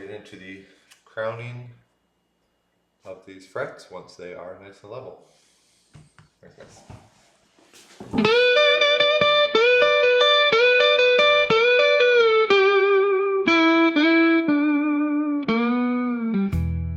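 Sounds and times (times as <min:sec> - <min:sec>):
electric guitar picked notes: 0:08.2 - 0:16.9.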